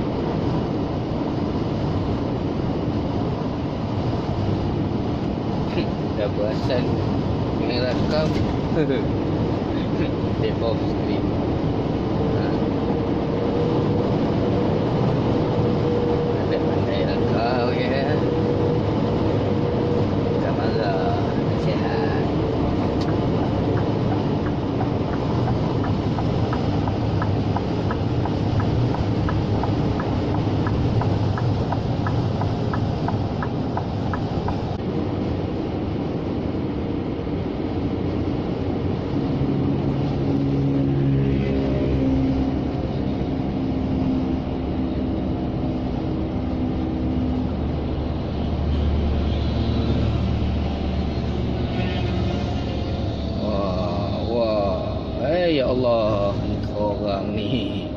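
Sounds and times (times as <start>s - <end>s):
road noise: 0.0s - 57.9s
diesel engine running: 11.0s - 36.0s
regular ticking: 22.6s - 34.8s.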